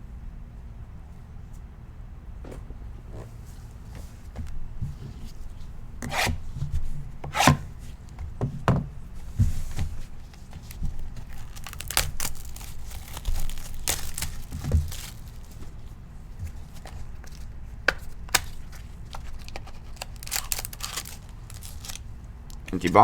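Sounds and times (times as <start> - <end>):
wrapper crinkling: 10.6 - 15.9, 18.3 - 23.0
card packs ripping open: 11.2 - 15.7, 18.2 - 23.0.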